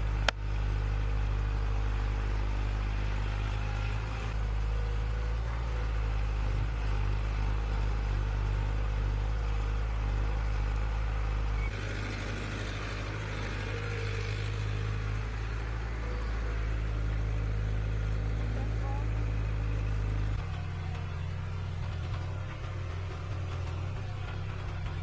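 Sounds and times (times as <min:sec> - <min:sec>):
engine running: 0:00.0 - 0:25.0.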